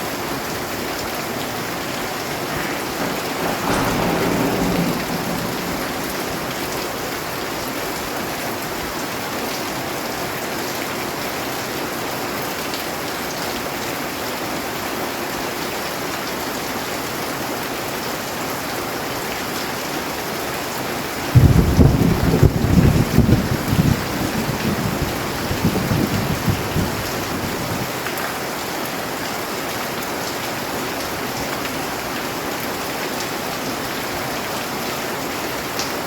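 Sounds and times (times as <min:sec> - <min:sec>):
heavy rainfall: 0:00.0 - 0:36.0
crackling thunder: 0:00.5 - 0:09.0, 0:21.3 - 0:28.0
low rumble: 0:02.3 - 0:07.4.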